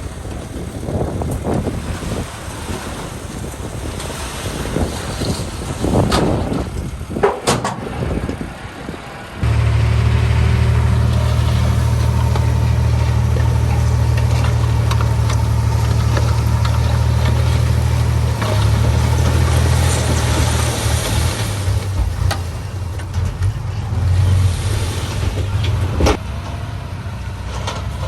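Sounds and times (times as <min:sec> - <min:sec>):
wind noise: 0:00.0 - 0:09.2
diesel engine running: 0:06.4 - 0:28.0.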